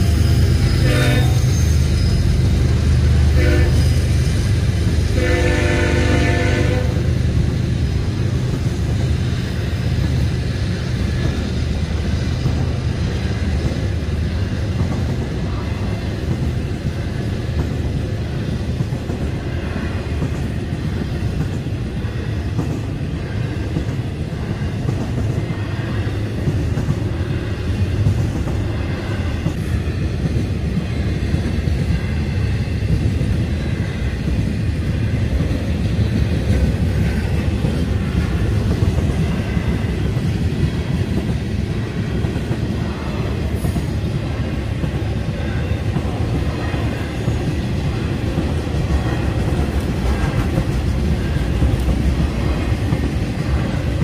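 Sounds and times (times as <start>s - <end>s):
train passing with low rumble: 0.0s - 54.0s
locomotive air horn: 0.8s - 1.5s, 3.3s - 4.1s, 5.1s - 7.1s.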